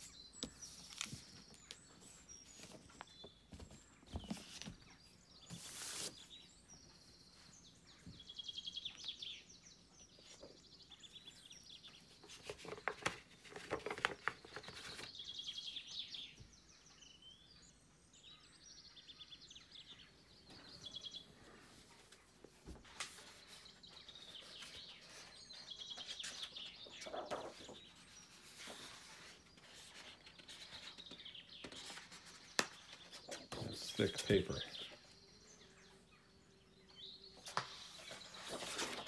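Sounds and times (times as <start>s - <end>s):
book being handled: 0.0s - 6.4s, 11.9s - 15.3s, 21.4s - 33.7s, 37.4s - 39.0s
songbirds trilling: 0.0s - 39.0s.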